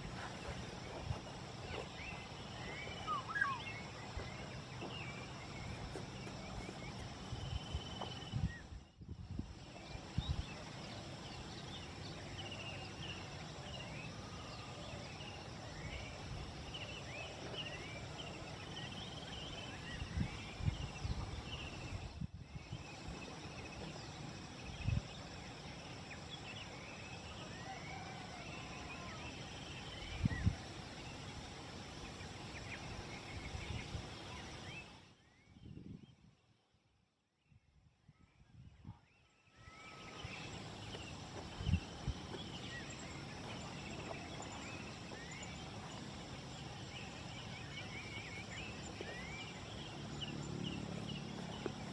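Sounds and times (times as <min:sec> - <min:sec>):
birds chirping and singing: 0:00.0 - 0:23.9
outdoor background noise: 0:00.0 - 0:51.9.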